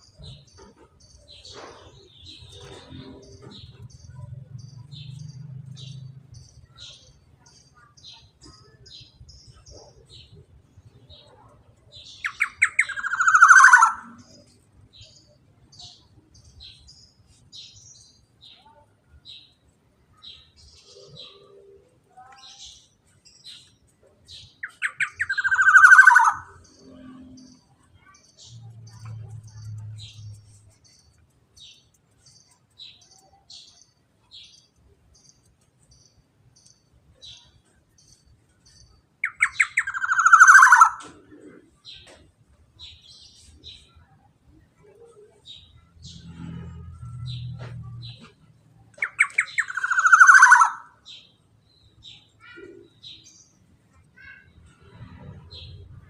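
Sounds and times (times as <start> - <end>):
faint high chirps: 0.0 - 42.2.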